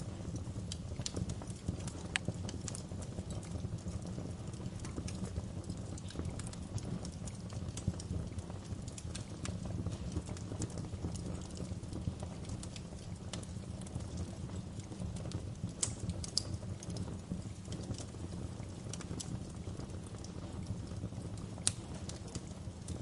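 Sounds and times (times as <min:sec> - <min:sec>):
fire crackling: 0:00.0 - 0:23.0
low rumble of flames: 0:00.0 - 0:23.0
sharp pops and snaps: 0:00.4 - 0:03.6, 0:14.9 - 0:23.0.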